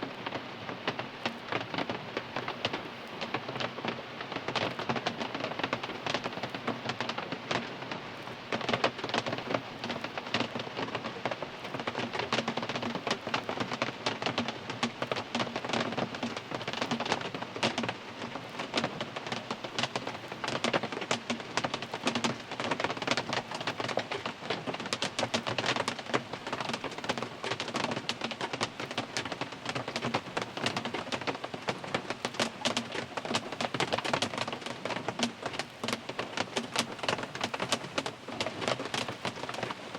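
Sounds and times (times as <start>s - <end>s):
rain on car roof and glass: 0.1s - 39.9s.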